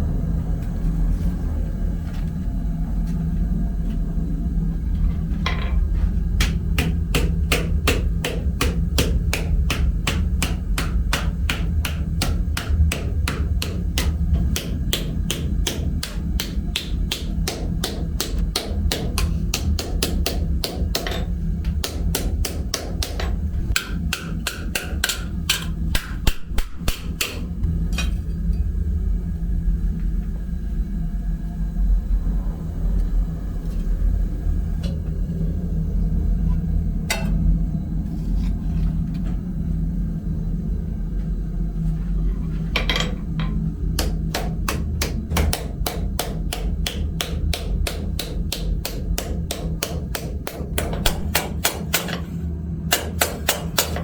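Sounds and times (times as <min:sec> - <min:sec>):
low rumble: 0:00.0 - 0:17.8, 0:25.3 - 0:48.0
hammer striking metal: 0:06.4 - 0:27.5, 0:44.0 - 0:54.0.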